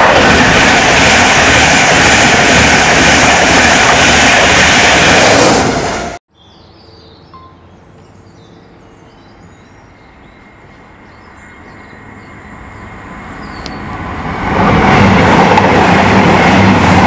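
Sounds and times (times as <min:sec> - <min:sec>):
loud train sound: 0:00.0 - 0:06.2, 0:09.4 - 0:17.0
passenger train rumble: 0:00.0 - 0:06.2, 0:07.5 - 0:17.0
faint birdsong: 0:06.3 - 0:14.0.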